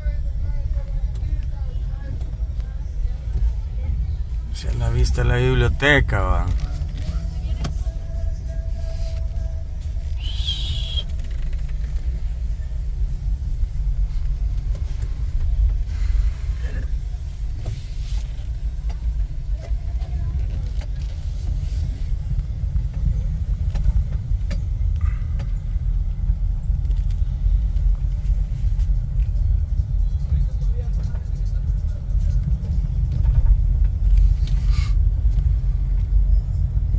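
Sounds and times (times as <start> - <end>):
car rumbling on the move: 0.0 - 36.9.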